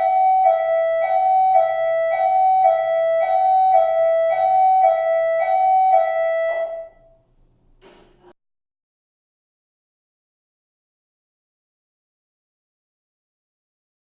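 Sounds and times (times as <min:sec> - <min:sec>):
electronic siren hi-lo pattern: 0:00.0 - 0:07.0.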